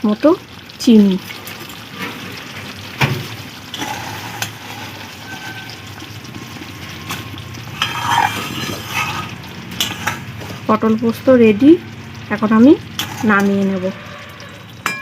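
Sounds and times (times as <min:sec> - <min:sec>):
low sizzle: 0:00.0 - 0:15.0
utensil scraping a pan: 0:03.7 - 0:10.7, 0:13.0 - 0:15.0.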